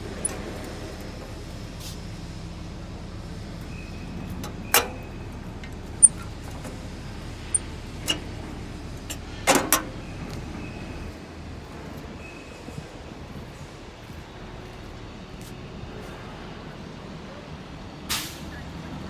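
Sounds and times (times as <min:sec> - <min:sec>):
truck engine running: 0:00.0 - 0:12.1.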